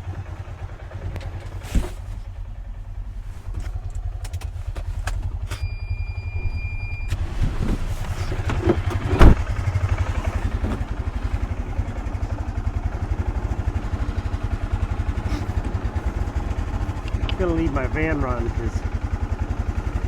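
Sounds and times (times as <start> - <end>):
van engine idling: 0.0 - 20.0
loud thump: 8.6 - 9.8.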